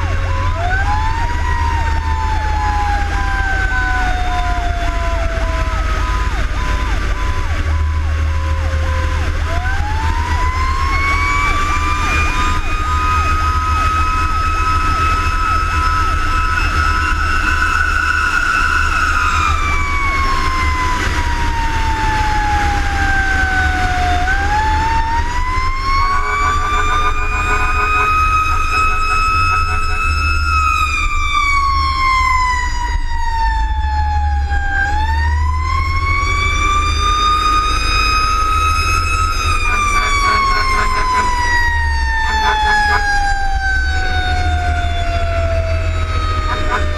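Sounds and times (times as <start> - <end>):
fire engine mechanical siren: 0.0 - 46.9
truck engine rumble: 0.0 - 46.9.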